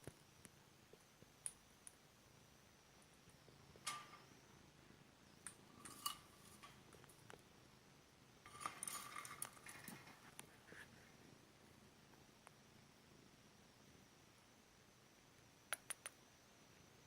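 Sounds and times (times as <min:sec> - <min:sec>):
faint light clinks: 0:05.4 - 0:07.3, 0:08.5 - 0:10.2.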